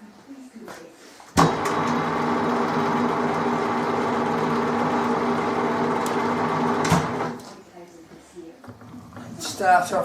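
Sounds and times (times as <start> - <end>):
metalworking lathe humming: 1.6 - 7.4.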